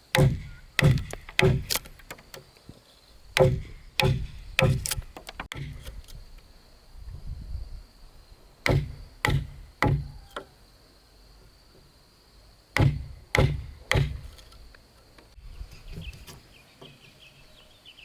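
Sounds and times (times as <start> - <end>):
hard strikes on wood: 0.0 - 2.4, 3.3 - 6.0, 8.6 - 10.5, 12.8 - 14.5.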